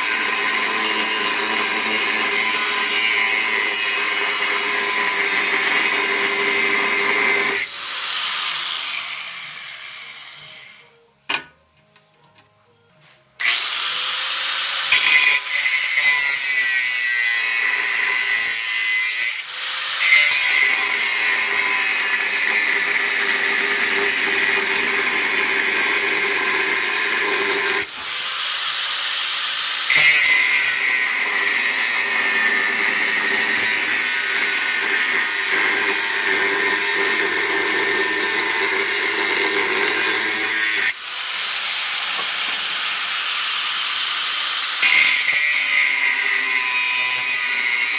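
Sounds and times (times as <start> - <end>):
power tool whining on steel: 0.0 - 11.0, 13.4 - 47.9.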